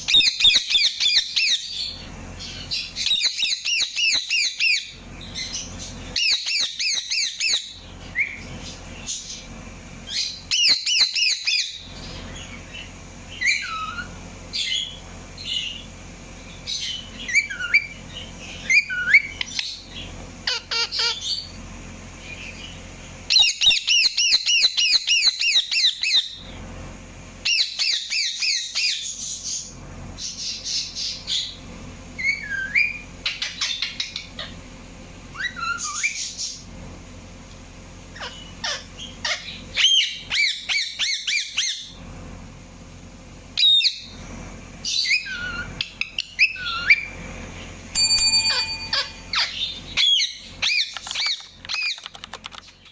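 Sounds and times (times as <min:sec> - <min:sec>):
parakeet calling: 0:00.0 - 0:09.2, 0:16.7 - 0:21.6.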